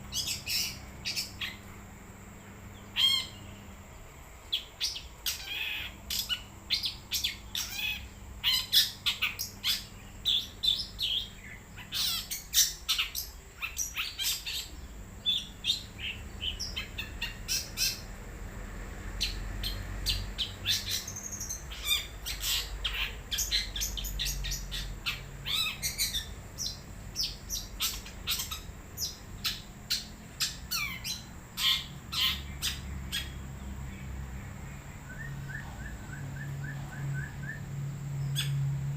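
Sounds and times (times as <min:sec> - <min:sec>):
shrike singing chirps and whistles: 0:00.0 - 0:01.6, 0:02.8 - 0:03.6, 0:04.5 - 0:18.1, 0:19.2 - 0:33.4, 0:34.9 - 0:38.7.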